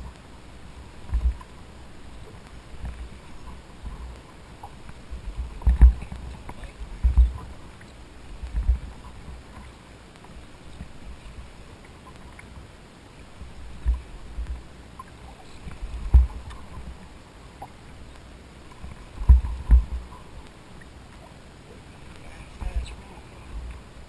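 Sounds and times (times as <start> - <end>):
steady water hiss: 0.0 - 24.0
deep thumps against boat: 5.3 - 7.4, 15.7 - 16.6, 19.2 - 20.1.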